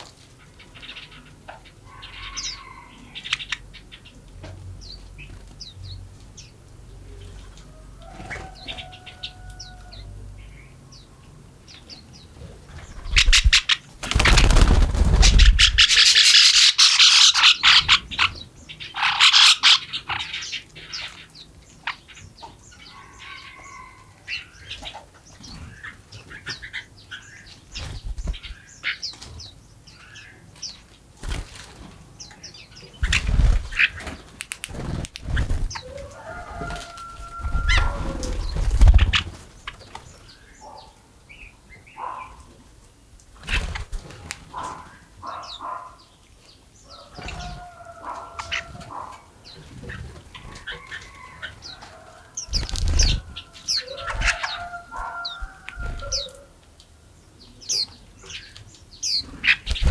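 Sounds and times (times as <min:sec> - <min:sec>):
wild birds chirping: 0:00.2 - 0:42.8, 0:43.4 - 0:59.9
larger bird calling: 0:13.0 - 0:18.0.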